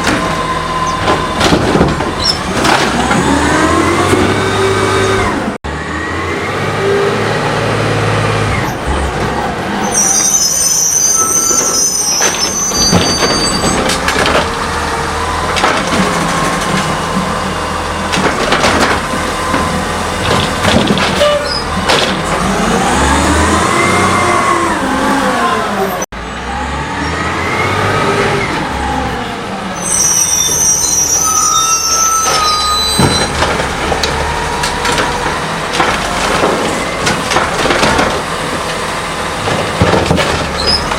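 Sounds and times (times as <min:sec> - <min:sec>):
garbage truck engine: 0:00.0 - 0:40.9
high hydraulic squeals: 0:02.2 - 0:02.5, 0:09.8 - 0:13.9, 0:21.2 - 0:21.8, 0:29.7 - 0:33.4
clanks of lift arm and cart: 0:11.5 - 0:22.8, 0:31.6 - 0:40.9.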